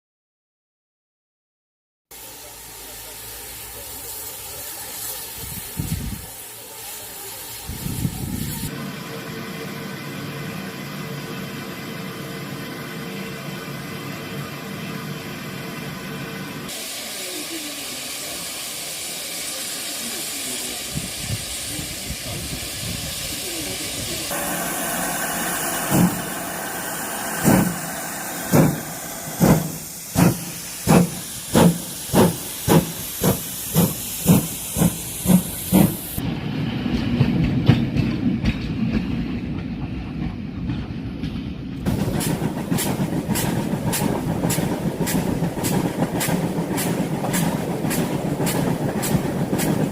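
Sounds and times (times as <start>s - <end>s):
steam hissing: 2.1s - 14.5s, 15.6s - 36.4s, 41.9s - 49.9s
steam locomotive chuffing: 2.1s - 49.9s
train running rumble: 20.8s - 49.9s.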